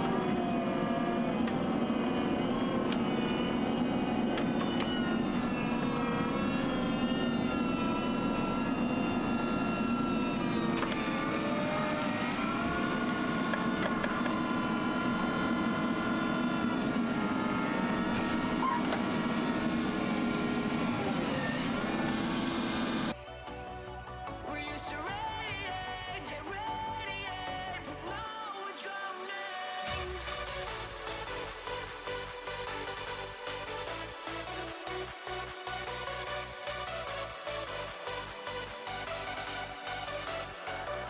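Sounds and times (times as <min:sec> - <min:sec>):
tractor engine running under load: 0:00.0 - 0:23.1.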